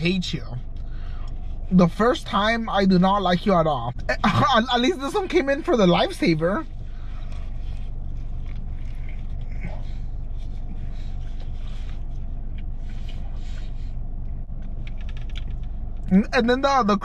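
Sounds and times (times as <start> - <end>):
low hum: 0.0 - 17.0
person chewing crunchy food: 6.7 - 16.1.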